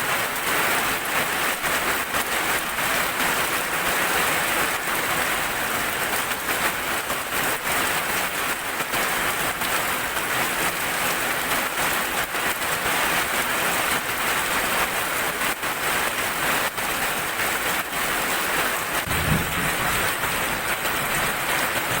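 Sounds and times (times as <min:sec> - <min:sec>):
heavy rain falling: 0:00.0 - 0:22.0
low rumble of thunder: 0:19.0 - 0:22.0.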